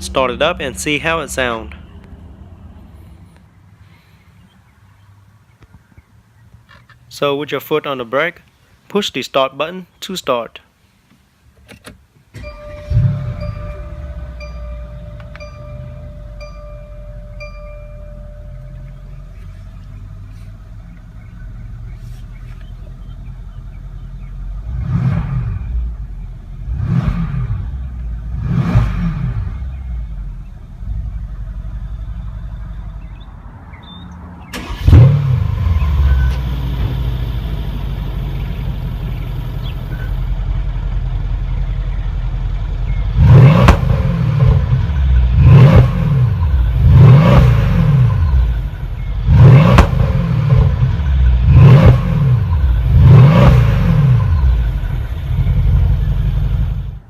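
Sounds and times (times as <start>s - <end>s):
car engine revving and idling: 12.4s - 33.7s, 34.4s - 57.0s.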